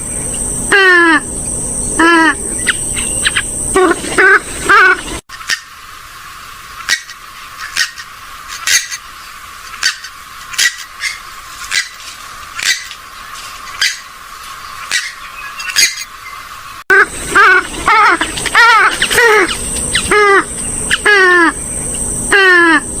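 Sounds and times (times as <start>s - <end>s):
steady hiss: 0.0s - 23.0s
bird giving sharp calls: 6.8s - 23.0s.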